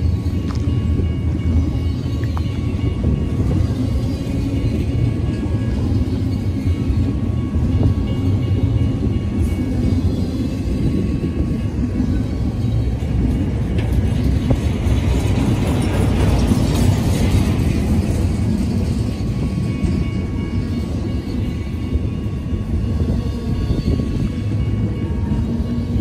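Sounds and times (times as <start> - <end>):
freight train rolling past: 0.0 - 26.0.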